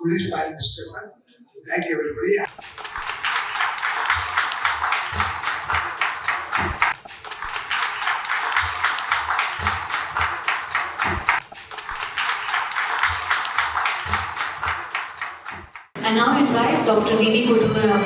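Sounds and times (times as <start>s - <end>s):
audience applauding: 2.5s - 16.0s.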